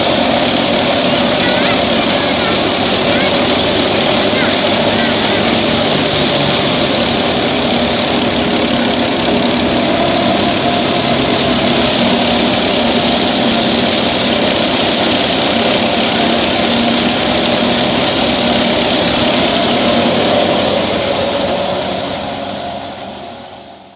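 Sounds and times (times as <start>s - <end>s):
thresher machinery rushing: 0.0s - 23.9s
tractor diesel engine under load: 0.0s - 23.9s.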